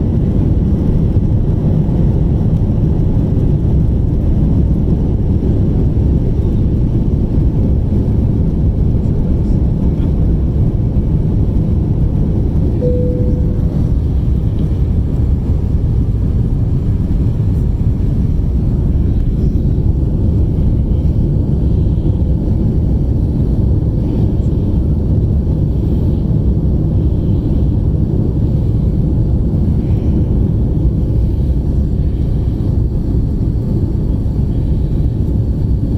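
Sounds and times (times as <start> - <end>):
jet engines roaring: 0.0 - 35.9
rushing air: 12.8 - 35.9.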